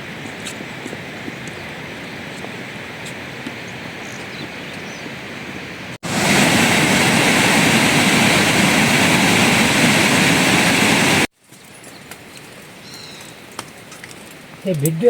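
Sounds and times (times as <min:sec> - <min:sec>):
loud rushing noise: 0:06.0 - 0:11.3.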